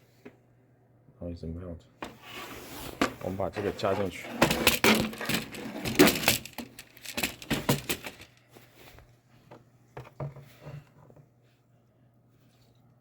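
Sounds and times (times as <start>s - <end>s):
plastic container clattering and clicking: 3.8s - 8.4s.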